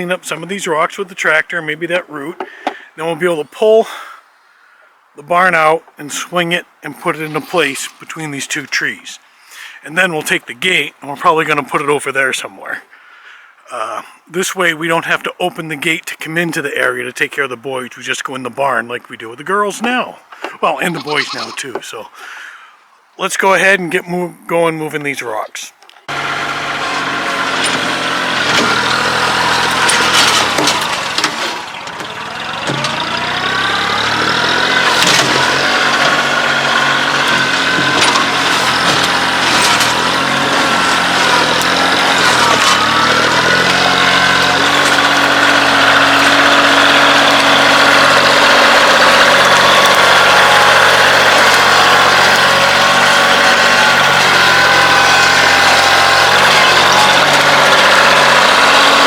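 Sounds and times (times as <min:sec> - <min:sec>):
diesel tractor engine running: 0:26.1 - 0:59.0.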